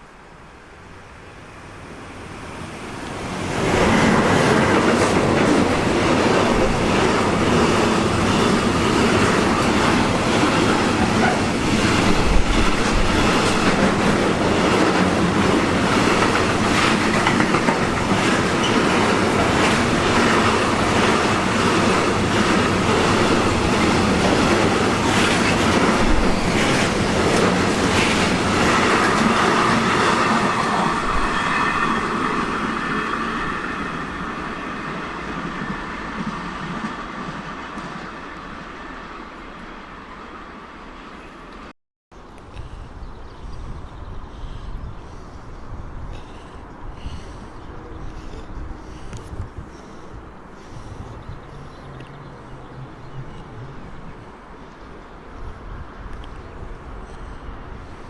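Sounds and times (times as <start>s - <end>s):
train wheels clattering over rail joints: 4.2s - 30.9s.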